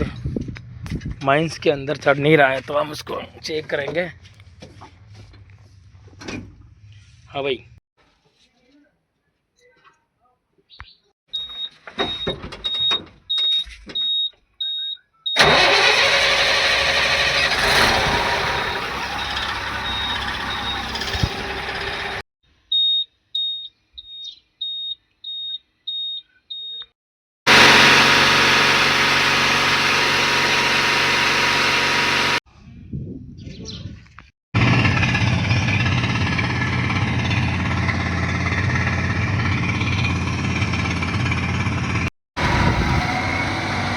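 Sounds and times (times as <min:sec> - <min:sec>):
diesel truck engine running: 0:15.4 - 0:22.2, 0:27.5 - 0:32.4, 0:34.6 - 0:43.9.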